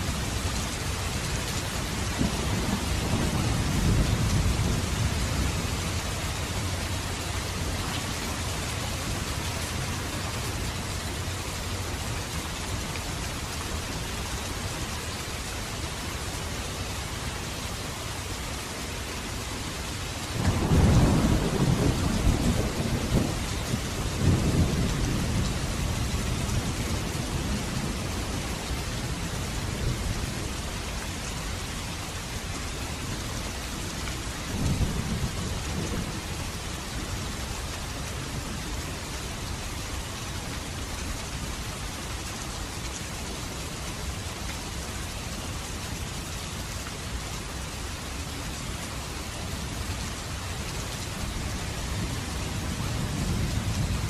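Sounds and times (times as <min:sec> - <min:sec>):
heavy rain: 0:00.0 - 0:54.0
thunder rumbling: 0:01.7 - 0:07.8, 0:20.4 - 0:30.6.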